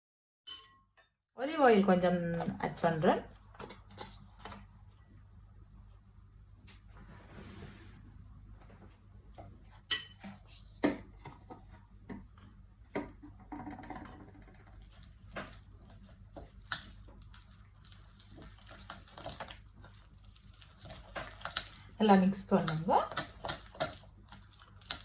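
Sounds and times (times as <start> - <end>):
spoon clinking and scraping bowl: 9.8 - 10.8, 22.6 - 25.0.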